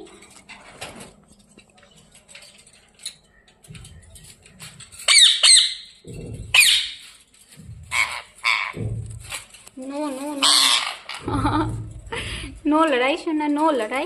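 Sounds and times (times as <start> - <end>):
parakeets squawking harshly: 5.0 - 7.1, 7.8 - 9.4, 10.3 - 11.3.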